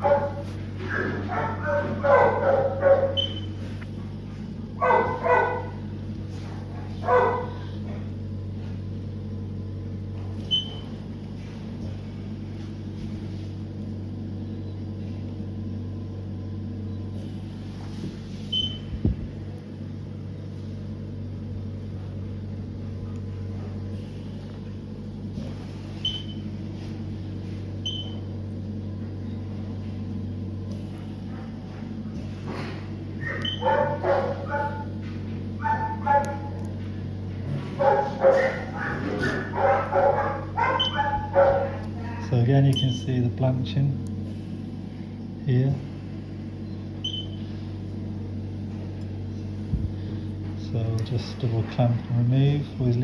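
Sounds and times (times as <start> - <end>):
sharp high dog yelps: 0.0 - 3.4, 4.8 - 5.8, 7.0 - 7.6, 33.2 - 34.9, 35.6 - 36.6, 37.8 - 41.8
dogs whining and yipping: 0.0 - 3.5, 4.8 - 5.6, 33.2 - 35.0, 35.6 - 36.6, 37.8 - 41.8
steady low hum: 0.0 - 53.0.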